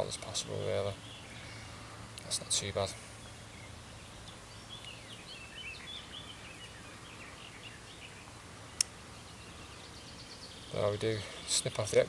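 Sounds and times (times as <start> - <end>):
outdoor background noise: 0.0 - 12.0
songbird chirping and warbling: 0.0 - 12.0.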